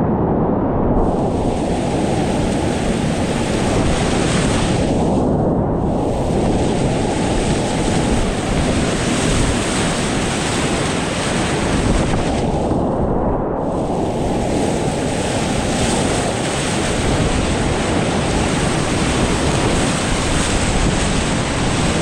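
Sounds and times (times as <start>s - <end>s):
whitewater rushing in river rapid: 14.7s - 22.0s.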